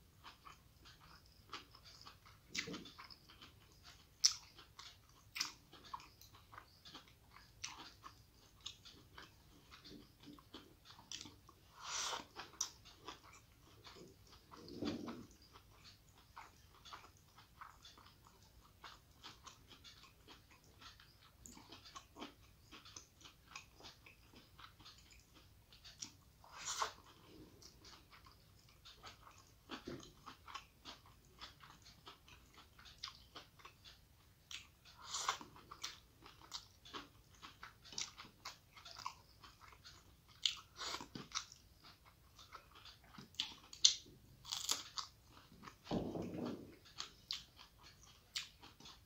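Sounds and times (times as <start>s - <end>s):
chewing and wet mouth clicks: 0.2s - 49.0s
crunchy bites: 42.8s - 49.0s.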